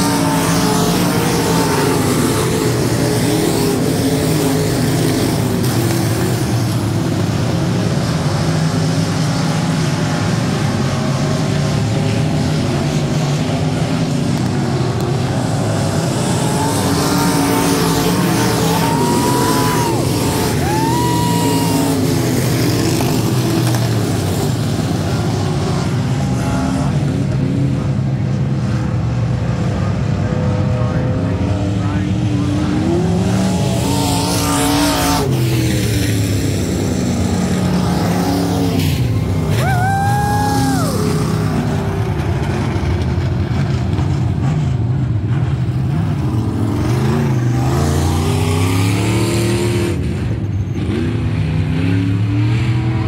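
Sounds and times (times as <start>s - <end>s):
race car engines revving: 0.0s - 53.0s.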